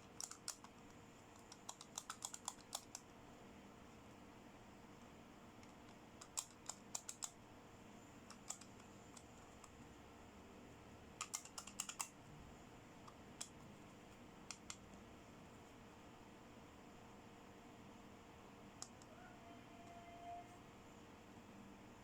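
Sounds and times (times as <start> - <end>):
plastic toy clicks and taps: 1.4 - 3.0, 6.2 - 7.3, 11.2 - 12.1.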